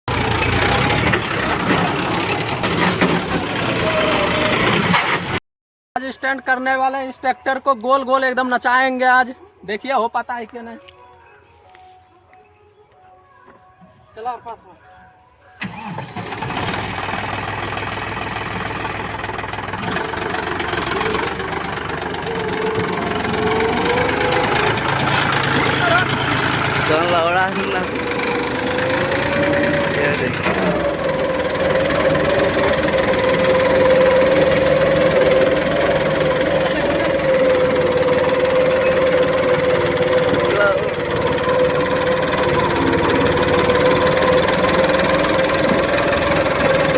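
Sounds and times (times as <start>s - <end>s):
tractor engine idling: 0.1s - 5.4s, 15.6s - 46.9s.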